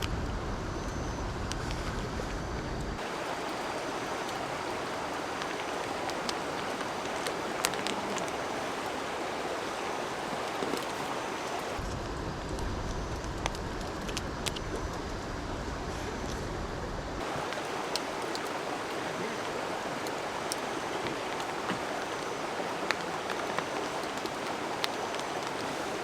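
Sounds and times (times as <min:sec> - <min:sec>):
running water rushing: 0:03.0 - 0:11.9, 0:17.2 - 0:26.0.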